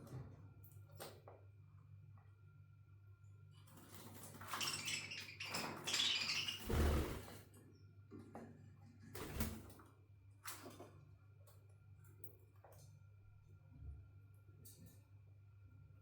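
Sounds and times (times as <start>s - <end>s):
bird wings fluttering: 6.6s - 7.4s.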